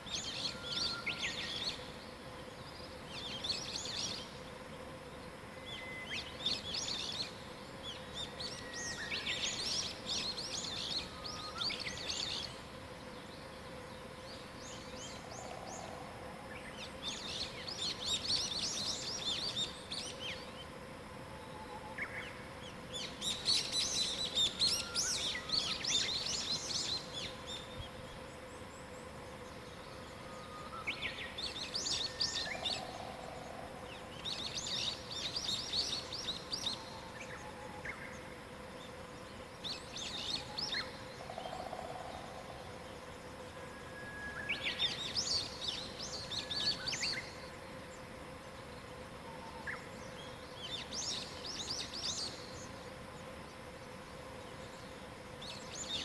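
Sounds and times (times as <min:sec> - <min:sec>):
faint steady hum: 0:00.0 - 0:56.0
songbirds chattering: 0:22.0 - 0:43.7.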